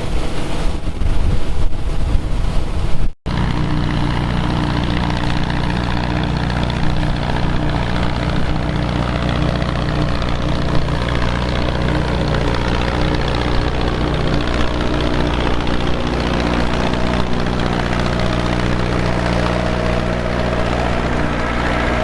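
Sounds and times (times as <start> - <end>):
heavy engine running: 0.0 - 22.0.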